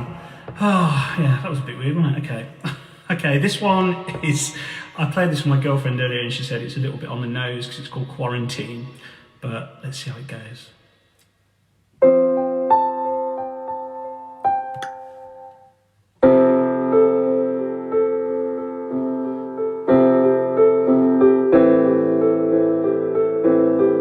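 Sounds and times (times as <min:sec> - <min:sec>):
solo piano playing: 0:12.0 - 0:24.0.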